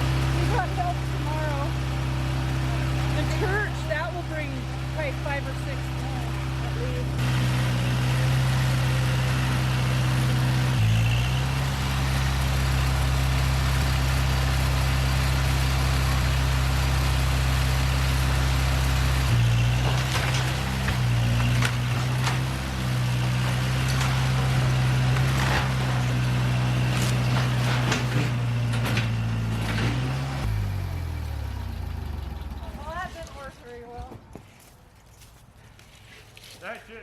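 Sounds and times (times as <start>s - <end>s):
heavy machinery engine running: 0.0s - 33.5s
sharp knocks and cracks: 19.3s - 30.2s.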